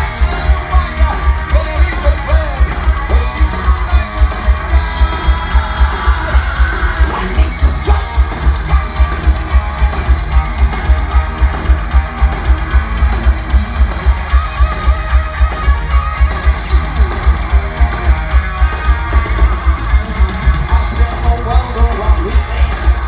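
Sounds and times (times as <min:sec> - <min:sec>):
bass guitar: 0:00.0 - 0:23.0
distorted electric guitar: 0:00.0 - 0:23.0
drums: 0:00.0 - 0:23.0.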